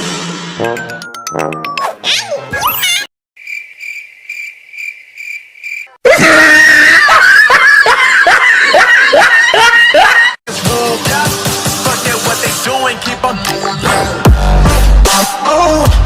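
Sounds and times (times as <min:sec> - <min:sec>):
crickets chirping: 0:03.4 - 0:06.0
loud distorted screaming: 0:06.1 - 0:07.5.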